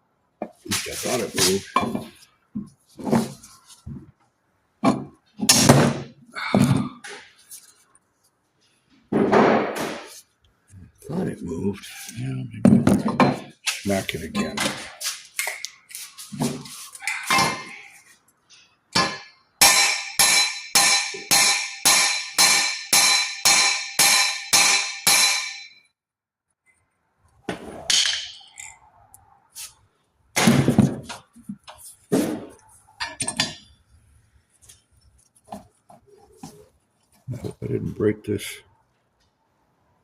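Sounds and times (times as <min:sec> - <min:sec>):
mallet hammering metal: 0:19.0 - 0:25.8
knocks and clinks: 0:33.0 - 0:33.8.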